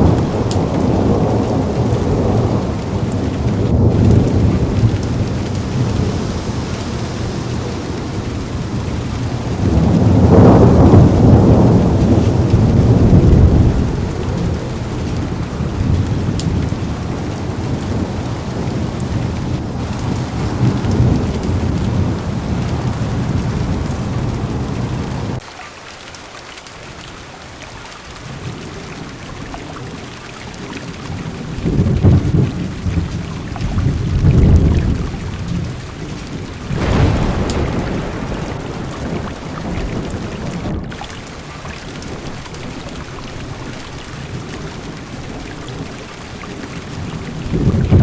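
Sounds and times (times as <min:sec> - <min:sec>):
low rolling thunder: 0:00.0 - 0:25.4, 0:28.3 - 0:48.0
heavy rain on car roof: 0:00.0 - 0:48.0.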